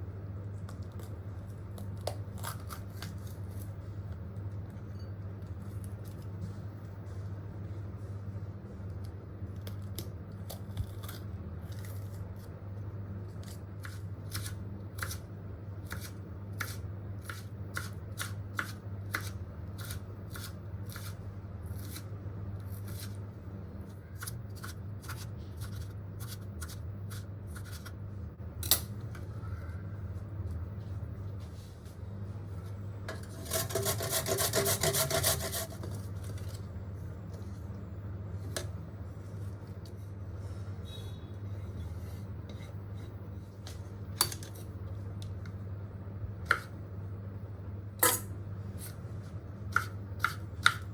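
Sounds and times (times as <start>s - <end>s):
steady low hum: 0.0s - 50.9s
knife cutting vegetables: 33.2s - 36.6s, 49.7s - 50.8s.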